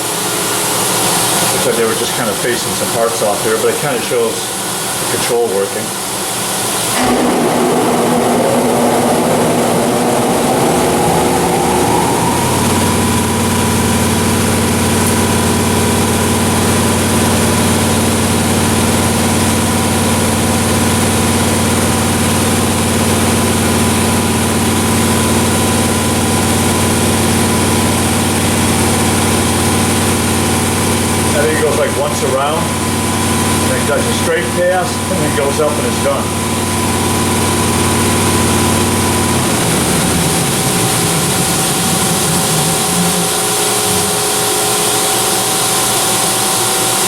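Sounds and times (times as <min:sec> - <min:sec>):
machining center whining: 0:06.8 - 0:46.6.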